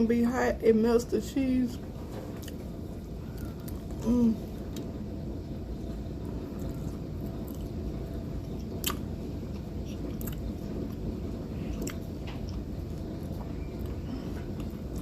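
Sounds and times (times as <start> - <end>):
low background hum: 0.0 - 15.0
person chewing food: 6.6 - 7.8, 8.5 - 15.0.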